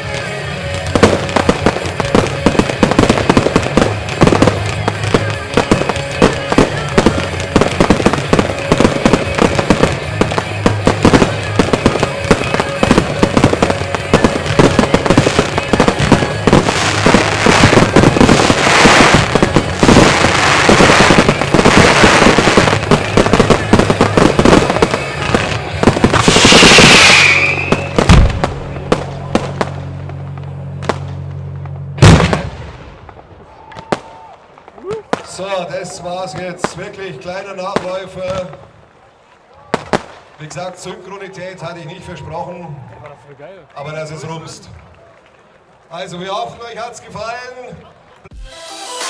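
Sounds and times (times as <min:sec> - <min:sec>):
fireworks bangs and crackling: 0:00.0 - 0:48.5
falling whistle: 0:26.4 - 0:28.0.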